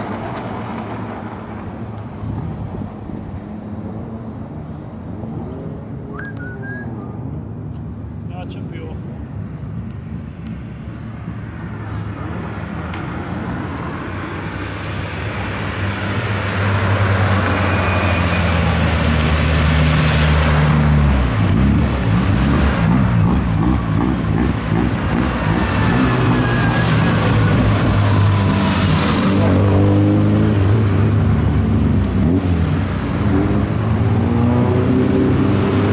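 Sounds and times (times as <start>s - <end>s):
race car engine approaching: 0.0s - 9.4s.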